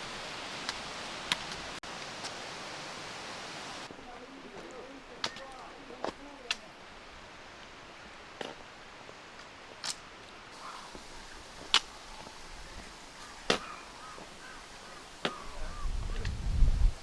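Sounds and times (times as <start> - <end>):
footsteps on stone: 10.9 - 14.6.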